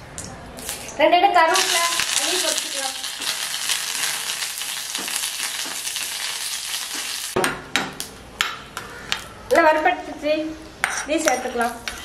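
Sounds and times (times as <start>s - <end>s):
chillies sizzling in hot oil: 0.6s - 7.4s.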